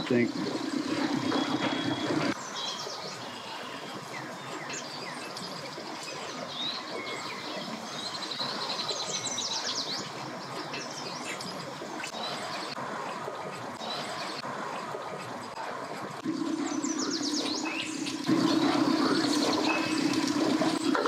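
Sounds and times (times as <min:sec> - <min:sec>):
small birds chirping and trilling: 0:00.0 - 0:21.0
loud steady hum: 0:15.6 - 0:21.0.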